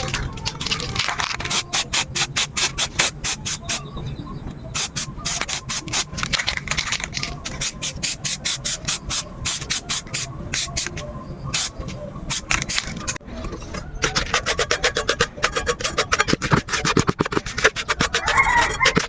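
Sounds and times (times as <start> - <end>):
sandpaper strokes: 0.5 - 3.8, 4.8 - 11.0, 14.0 - 19.0.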